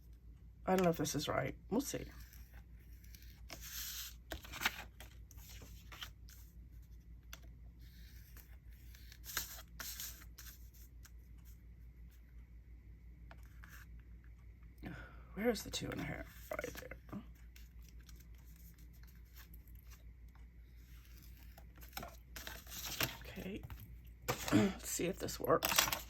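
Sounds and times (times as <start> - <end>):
paper rustling: 2.3 - 6.5, 20.8 - 24.8, 25.6 - 26.0.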